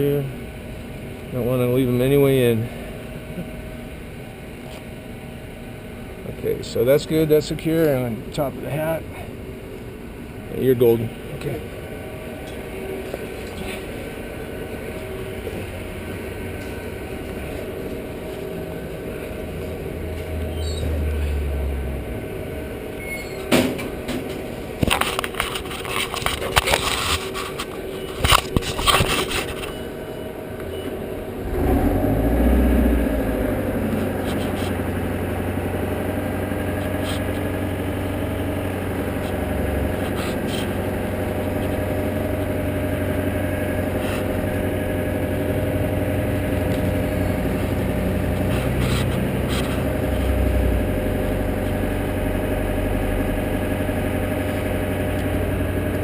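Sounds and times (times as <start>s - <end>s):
handling noises scraping and clicking: 23.4s - 30.0s, 34.0s - 34.8s, 40.0s - 40.9s, 48.4s - 50.4s
engine idling: 29.4s - 56.0s.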